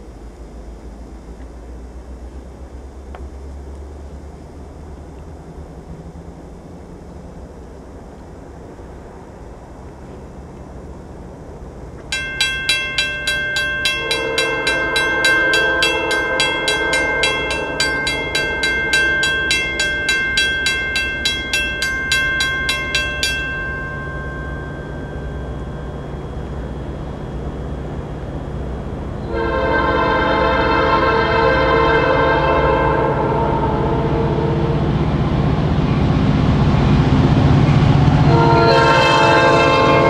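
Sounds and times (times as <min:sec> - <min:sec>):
low rumble of train: 0:00.0 - 0:40.0
grade crossing bell ringing: 0:12.1 - 0:29.5
locomotive air horn blast: 0:14.0 - 0:17.8, 0:29.2 - 0:34.9, 0:38.2 - 0:40.0.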